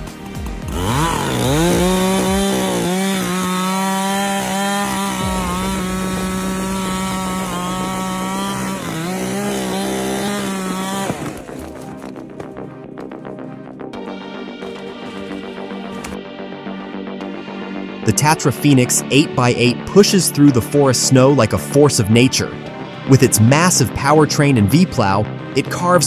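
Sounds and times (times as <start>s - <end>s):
chainsaw revving: 0.6s - 12.6s, 14.6s - 16.2s.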